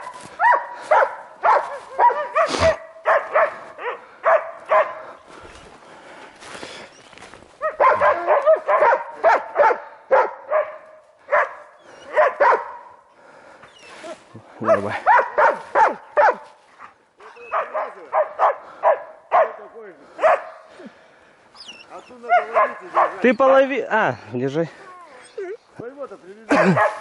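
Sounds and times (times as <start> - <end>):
dogs barking: 0.0 - 5.2, 7.6 - 13.1, 14.5 - 20.7, 21.7 - 23.4, 26.5 - 27.0.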